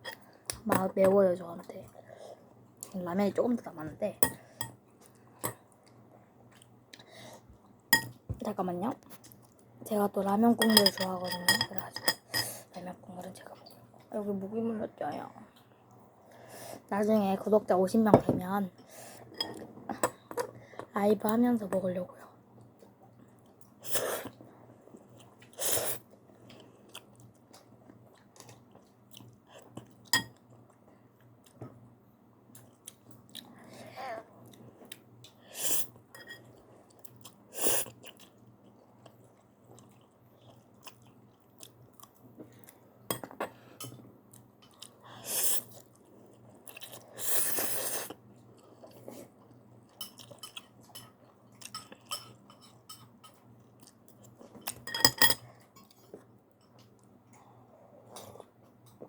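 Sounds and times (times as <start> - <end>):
person chewing noodles: 23.4 - 30.8, 36.5 - 42.8, 44.3 - 52.1.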